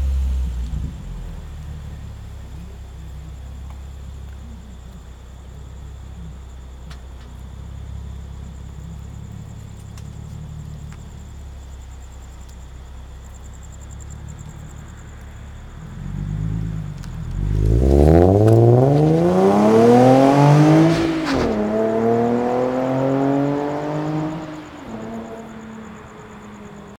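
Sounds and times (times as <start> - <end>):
car engine revving: 14.0 - 27.0.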